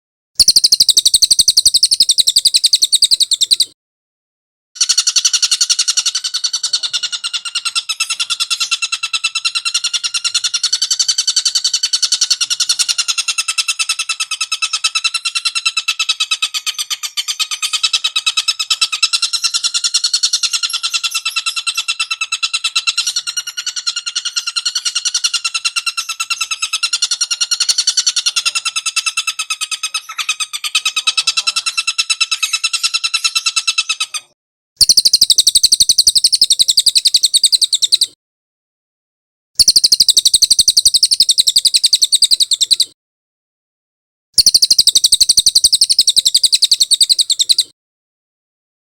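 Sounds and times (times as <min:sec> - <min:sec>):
higher-pitched bird call: 0:00.4 - 0:03.7, 0:34.8 - 0:38.1, 0:39.6 - 0:42.9, 0:44.4 - 0:47.7
bird call pulsing trill: 0:00.4 - 0:03.8, 0:34.8 - 0:38.2, 0:39.6 - 0:42.9, 0:44.4 - 0:47.7.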